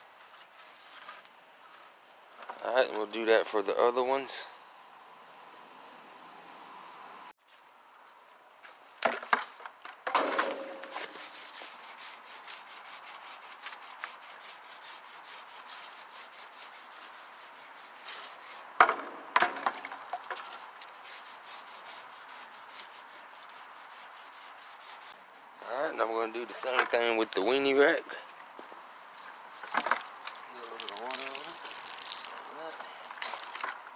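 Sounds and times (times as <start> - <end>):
brush scrubbing metal: 10.7 - 18.6, 20.5 - 25.2.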